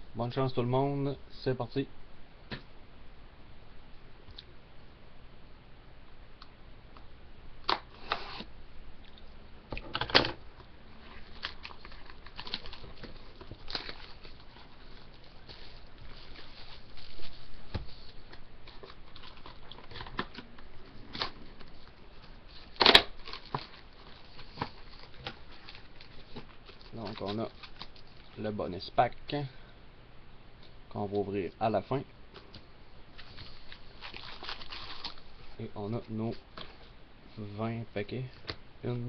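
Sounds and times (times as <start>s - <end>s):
plastic wrap crinkling: 11.0s - 28.4s, 33.1s - 36.9s.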